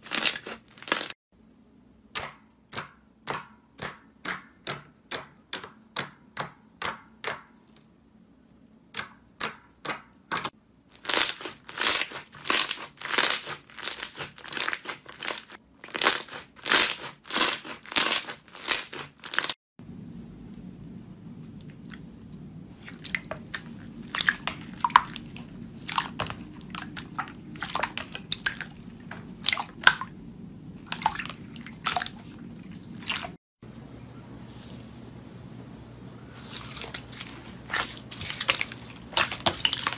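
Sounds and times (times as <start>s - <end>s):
low hum: 19.8s - 27.6s.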